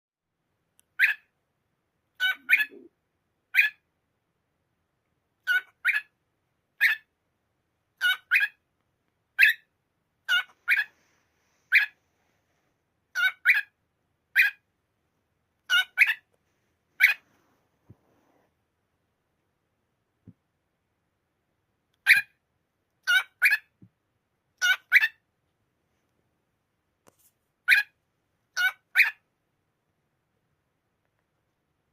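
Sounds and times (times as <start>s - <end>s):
cockatiel harsh calls: 1.0s - 1.3s, 2.2s - 2.9s, 3.5s - 3.8s, 5.4s - 6.2s, 6.8s - 7.1s, 8.0s - 8.6s, 9.4s - 11.0s, 11.7s - 12.0s, 13.1s - 14.6s, 15.7s - 16.3s, 17.0s - 17.3s, 22.0s - 22.4s, 23.0s - 23.7s, 24.6s - 25.2s, 27.6s - 29.2s.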